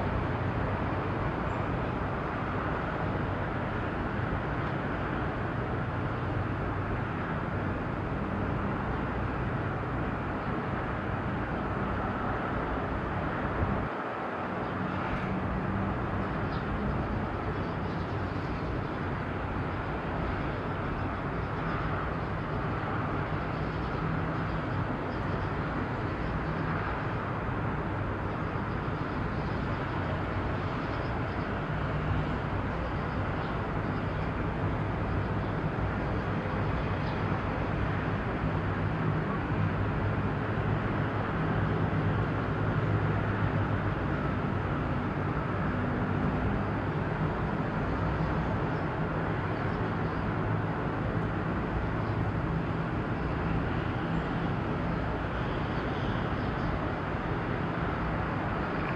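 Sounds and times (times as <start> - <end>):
outdoor harbour noise: 0.0 - 58.9.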